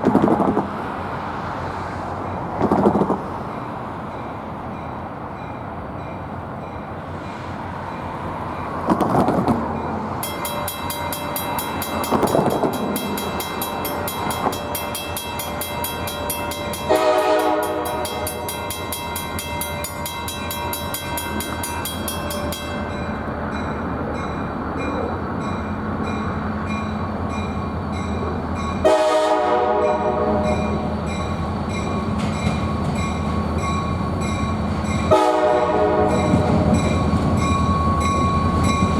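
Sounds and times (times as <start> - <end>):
diesel locomotive engine running: 0.0 - 38.9
locomotive air horn blasts: 16.8 - 18.6, 28.8 - 31.0, 35.1 - 36.8.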